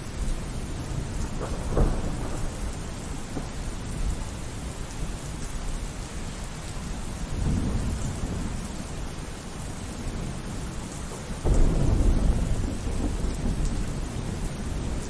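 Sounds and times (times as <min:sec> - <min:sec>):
heavy rain: 0:00.0 - 0:15.0
rolling thunder rumble: 0:00.2 - 0:05.3, 0:07.1 - 0:15.0
sharp thunderclap: 0:00.9 - 0:04.2, 0:11.4 - 0:15.0.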